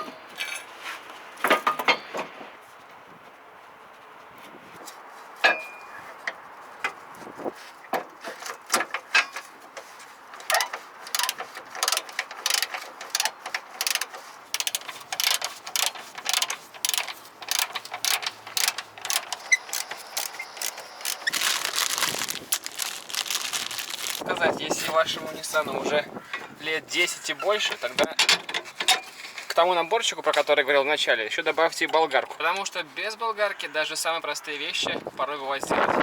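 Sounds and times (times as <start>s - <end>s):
ratchet wrench clicking: 10.5s - 21.4s.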